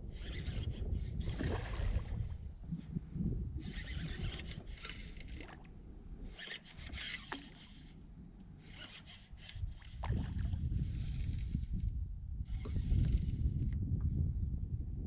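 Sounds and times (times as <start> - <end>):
wind rumble on microphone: 0.0 - 7.2, 9.3 - 15.0
scraping and rubbing on a kayak: 0.1 - 3.0, 3.6 - 5.7, 6.3 - 8.0, 8.6 - 13.8.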